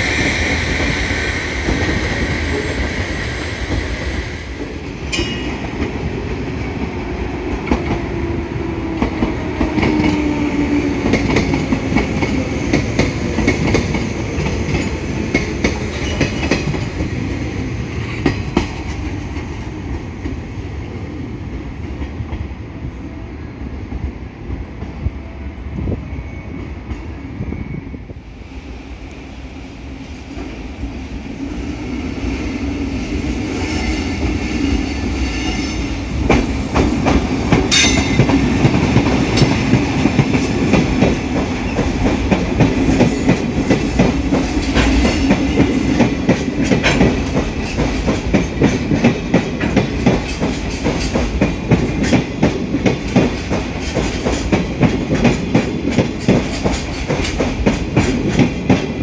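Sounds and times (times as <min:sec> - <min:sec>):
train running past: 0:00.0 - 0:59.0.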